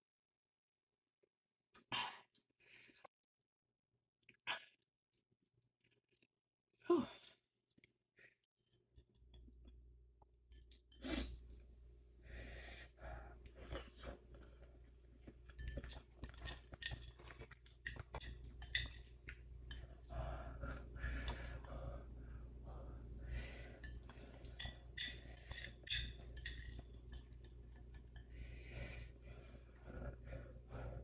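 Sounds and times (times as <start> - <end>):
breathing: 2.0 - 3.1, 12.2 - 14.8, 20.0 - 24.5, 28.2 - 31.0
chewing noodles: 13.5 - 23.0, 23.6 - 28.4
steady low hum: 18.2 - 31.0.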